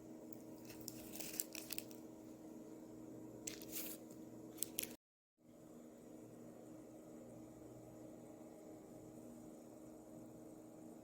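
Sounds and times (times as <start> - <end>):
rustling scrapes of objects handled: 0.4 - 2.0, 3.4 - 5.0.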